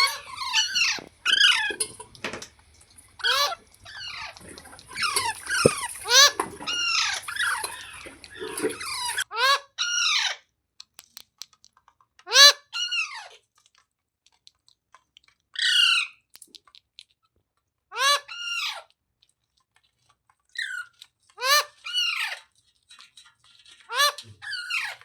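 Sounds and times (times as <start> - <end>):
parrot squawking: 0.0 - 1.7, 3.2 - 10.4, 12.3 - 13.3, 18.0 - 18.8, 20.6 - 22.4.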